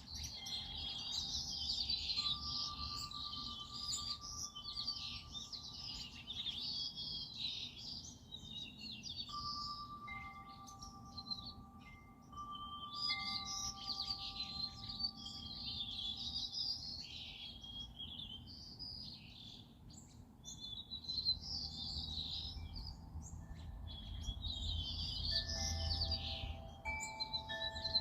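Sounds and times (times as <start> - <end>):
wind chime tones: 0.0 - 7.4, 9.1 - 17.6, 21.8 - 28.0
songbirds chirping: 0.0 - 28.0.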